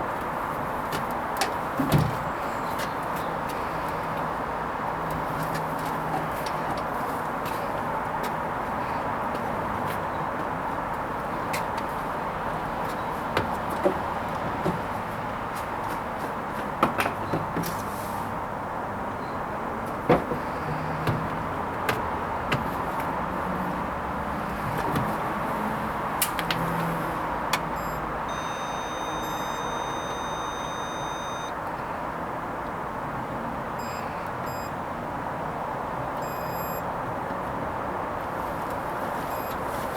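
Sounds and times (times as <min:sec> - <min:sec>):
washing machine humming: 0:27.8 - 0:31.5
long electronic beep: 0:27.8 - 0:31.6, 0:33.8 - 0:34.7
short beeps: 0:27.8 - 0:31.6, 0:33.8 - 0:34.7, 0:36.2 - 0:36.8, 0:39.3 - 0:39.6.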